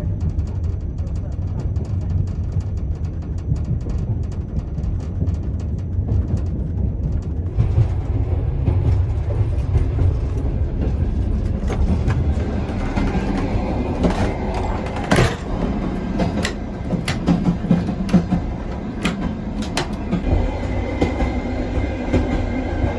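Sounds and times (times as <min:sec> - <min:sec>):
train rumbling on rails: 0:00.0 - 0:22.9
wheels clacking over track: 0:07.3 - 0:22.9.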